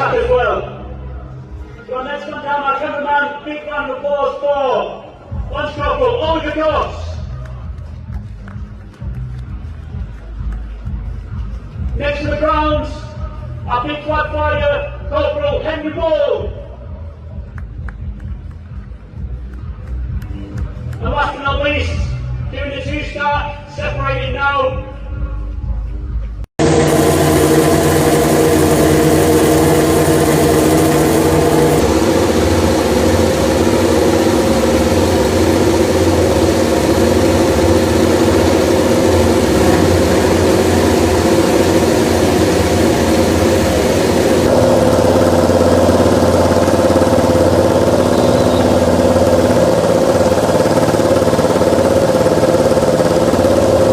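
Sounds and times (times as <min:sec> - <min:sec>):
engine running steadily: 0:26.2 - 0:53.9.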